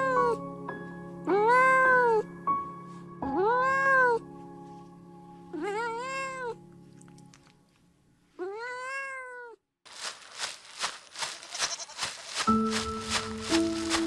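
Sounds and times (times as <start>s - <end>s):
cat meowing: 1.3s - 2.2s, 3.3s - 4.2s, 5.5s - 6.6s, 8.4s - 9.6s, 11.7s - 12.0s.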